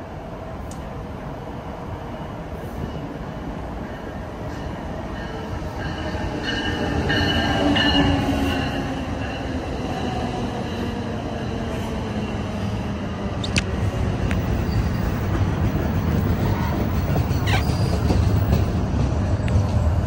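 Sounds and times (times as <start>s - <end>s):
train wheels rumbling on rail: 0.0s - 20.0s
high wheel squeal: 16.5s - 18.4s.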